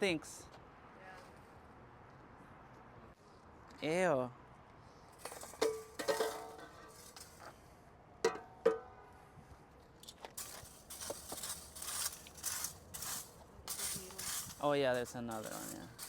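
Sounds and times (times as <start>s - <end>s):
scraping and brushing pavement: 4.8s - 7.8s, 9.8s - 16.0s.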